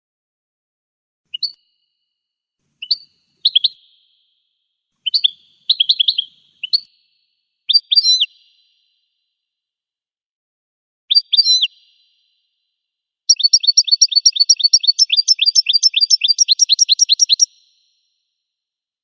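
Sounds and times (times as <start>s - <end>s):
finch chirping and twittering: 2.8s - 3.8s, 5.0s - 6.9s, 13.3s - 17.5s.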